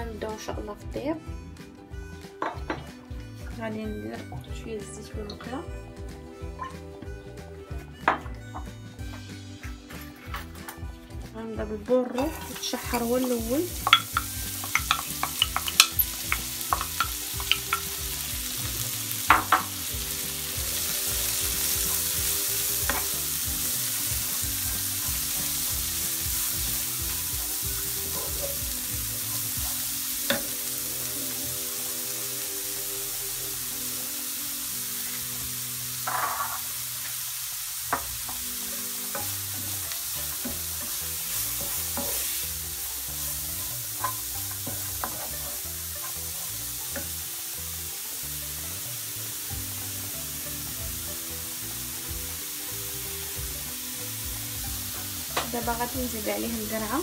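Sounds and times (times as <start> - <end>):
wooden spoon stirring: 12.2 - 17.9
leeks sizzling in a frying pan: 12.2 - 57.0.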